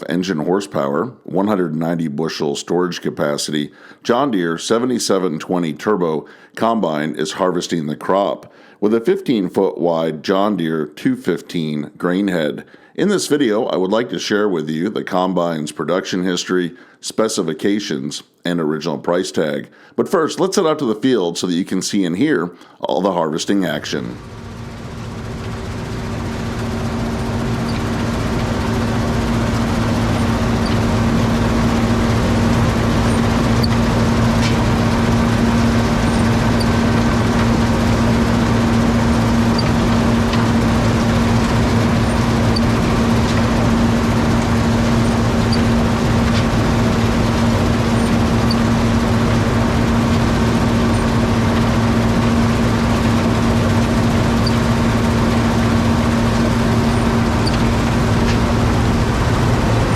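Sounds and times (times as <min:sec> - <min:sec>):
combine harvester engine humming: 0:24.1 - 0:59.9.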